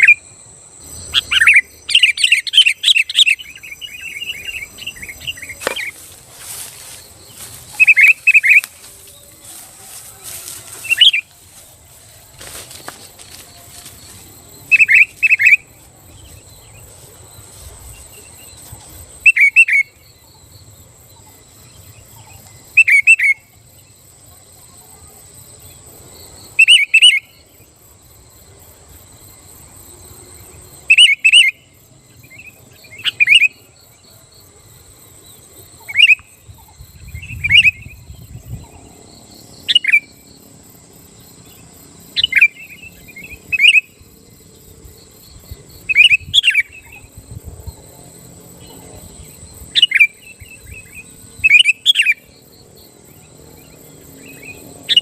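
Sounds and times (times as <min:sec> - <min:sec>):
bulbul whistled calls: 0:07.4 - 0:09.4, 0:10.8 - 0:11.3.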